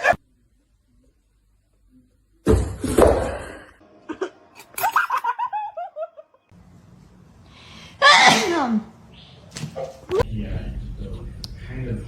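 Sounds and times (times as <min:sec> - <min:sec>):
person laughing: 0:04.0 - 0:06.4.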